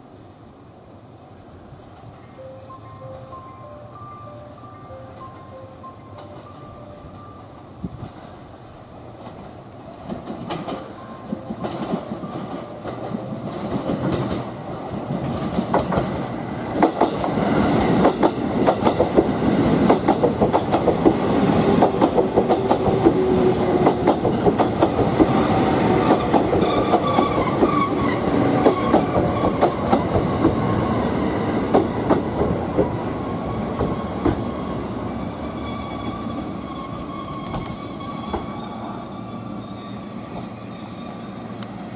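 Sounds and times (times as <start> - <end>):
train wheels clicking on rails: 9.1 - 38.6.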